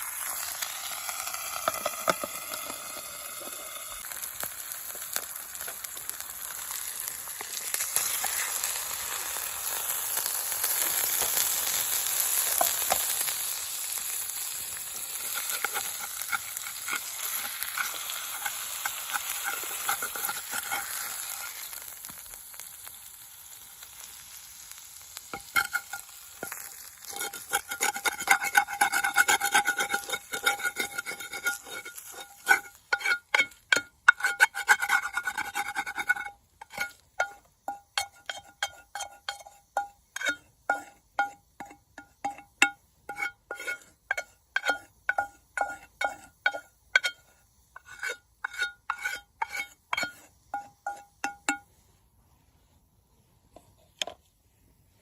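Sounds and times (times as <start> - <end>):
steak sizzling in a frying pan: 0.0 - 51.6
spatula scraping metal pan: 15.1 - 21.7, 25.3 - 51.8
stirring: 15.2 - 21.7, 25.3 - 47.2, 47.8 - 51.6.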